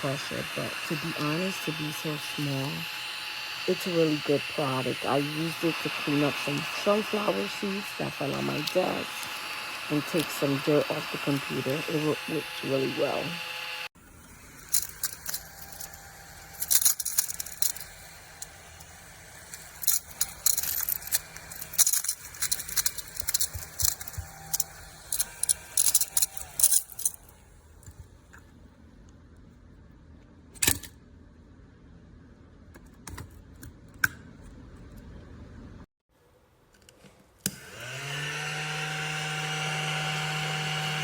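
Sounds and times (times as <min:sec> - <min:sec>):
small vacuum humming: 0:00.0 - 0:28.1, 0:37.4 - 0:41.0
debris rattling and clicking: 0:19.8 - 0:27.2.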